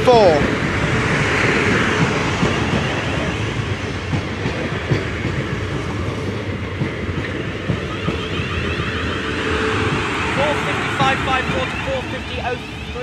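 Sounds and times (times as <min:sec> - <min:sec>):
train rumbling past: 0:00.0 - 0:13.0
wheels clicking over rail joints: 0:01.9 - 0:08.4.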